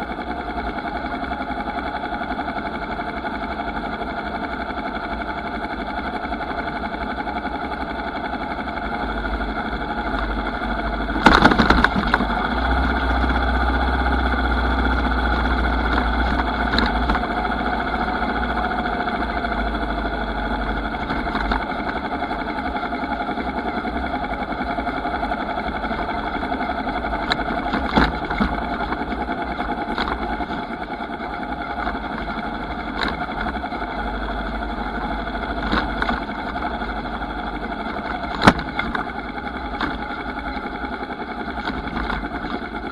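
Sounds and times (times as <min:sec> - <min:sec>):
motorcycle engine running: 0:00.0 - 0:42.9
sharp knocks: 0:11.2 - 0:12.3
loud clattering: 0:11.2 - 0:12.4.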